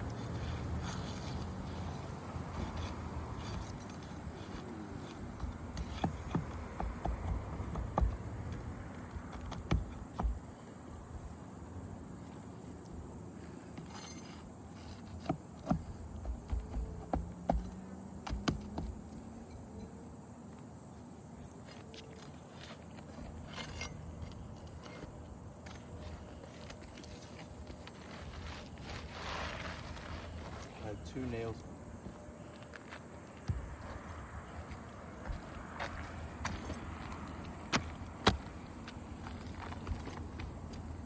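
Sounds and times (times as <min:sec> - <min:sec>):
faint steady background noise: 0:00.0 - 0:41.0
hand tools tapping roof shingles: 0:02.5 - 0:10.5, 0:13.8 - 0:19.0.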